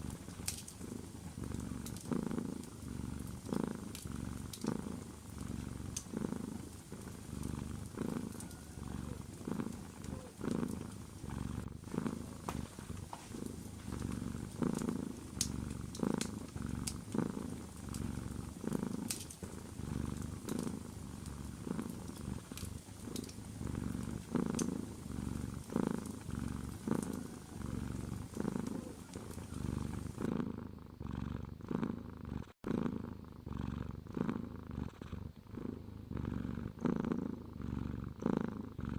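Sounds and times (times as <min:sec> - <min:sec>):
wood fire crackling: 0:00.0 - 0:30.2
cat purring: 0:00.0 - 0:38.9.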